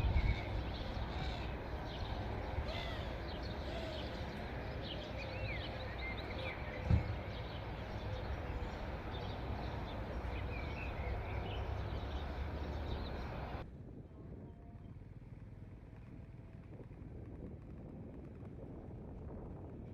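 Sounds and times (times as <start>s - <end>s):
birds chirping: 0.0s - 13.6s
low steady rumble: 0.0s - 19.9s.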